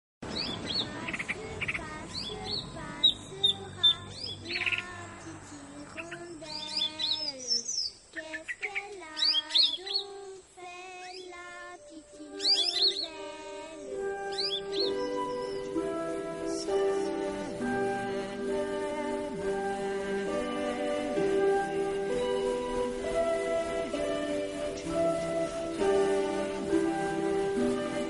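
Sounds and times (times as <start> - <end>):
high bird chirps: 0.2 - 10.2, 12.3 - 13.2, 13.8 - 17.6
steady music tones: 11.6 - 28.0.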